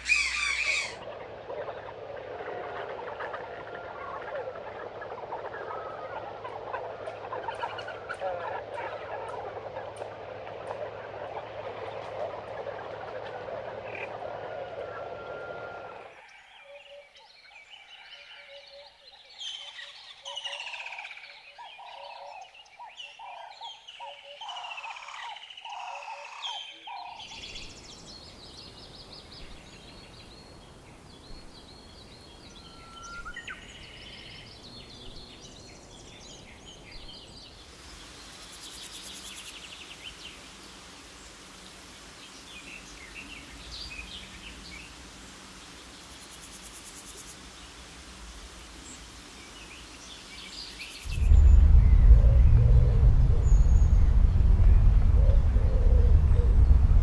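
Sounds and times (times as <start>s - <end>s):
birds calling and singing: 0.0s - 12.5s
steady background hiss: 26.3s - 57.0s.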